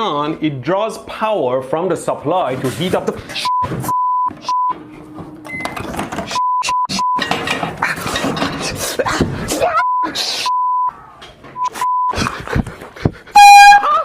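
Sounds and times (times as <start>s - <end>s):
censor bleeps: 3.4s - 4.8s, 6.3s - 7.3s, 9.7s - 11.0s, 11.6s - 12.2s.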